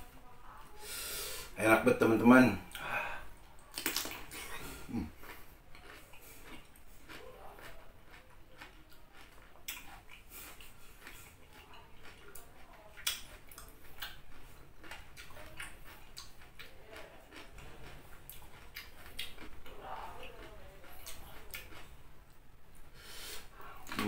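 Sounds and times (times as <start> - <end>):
crunching raw vegetables: 3.6 - 22.0.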